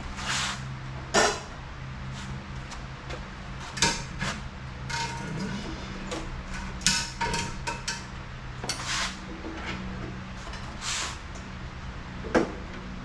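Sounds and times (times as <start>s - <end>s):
steady low hum: 0.0s - 13.0s
metal tools clanking: 3.7s - 8.9s.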